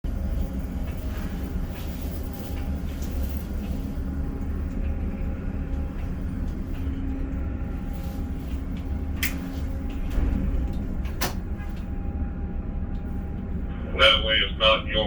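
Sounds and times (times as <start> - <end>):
steady hum: 0.0 - 15.0
crane machinery droning: 0.1 - 15.0.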